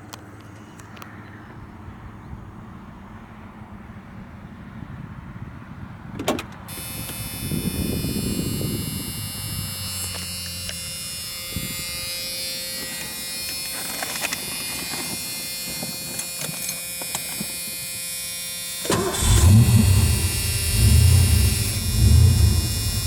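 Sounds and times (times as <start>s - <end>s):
small electric motor whining: 6.7s - 23.0s
loud low rumble: 19.2s - 23.0s.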